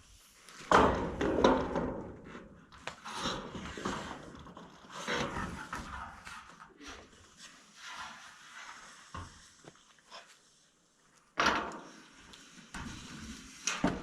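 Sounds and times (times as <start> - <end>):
knocks and clatters from roof work: 0.6 - 6.2.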